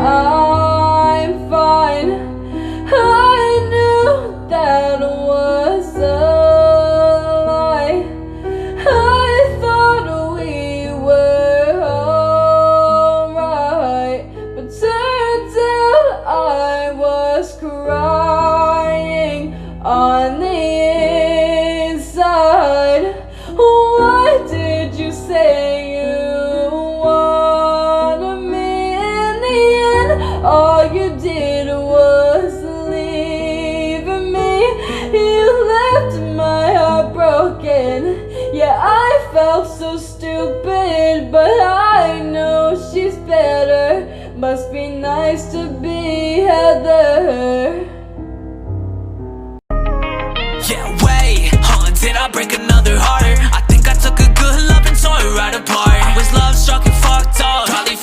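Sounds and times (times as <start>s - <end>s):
woman singing: 0.0s - 8.2s, 8.8s - 47.9s, 50.6s - 58.0s
instrumental backing with bass: 48.5s - 58.0s.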